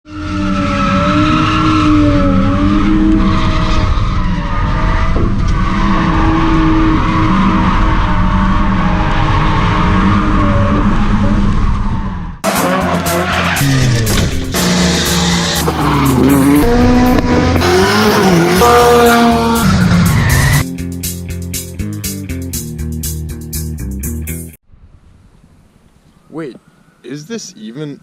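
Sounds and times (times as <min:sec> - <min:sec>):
car engine revving: 0:00.1 - 0:20.6
tyres squealing: 0:13.1 - 0:16.8.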